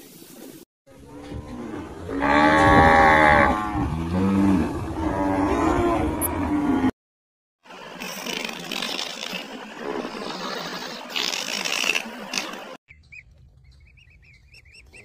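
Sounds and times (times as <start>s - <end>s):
cattle mooing: 0.9s - 6.9s.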